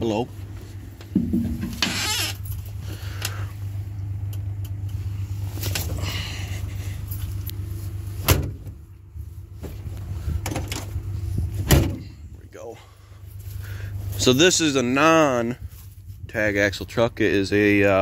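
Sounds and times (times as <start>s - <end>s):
engine idling hum: 0.0s - 18.0s
rattles and knocks in truck cab: 1.0s - 2.2s, 8.2s - 8.8s, 9.6s - 12.2s.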